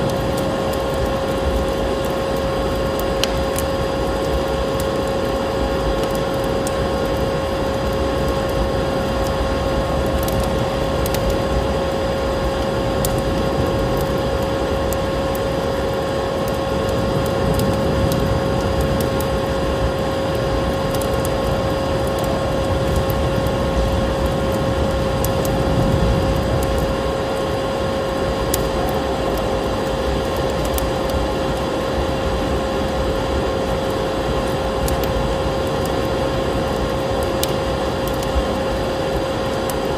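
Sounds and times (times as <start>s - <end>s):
wood fire crackling: 0.0s - 39.9s
storm wind rushing: 16.8s - 30.3s.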